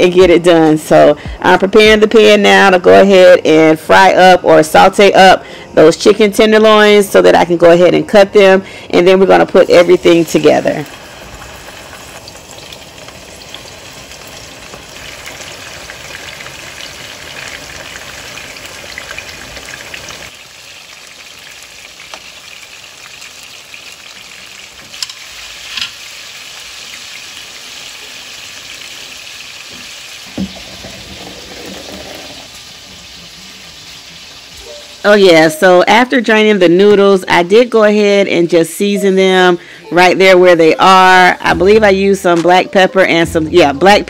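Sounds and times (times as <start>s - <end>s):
chicken sizzling in hot oil: 9.8s - 36.4s.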